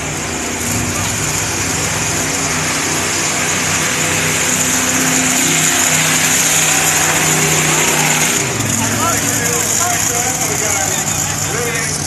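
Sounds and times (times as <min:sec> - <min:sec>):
truck engines droning: 0:00.0 - 0:12.0.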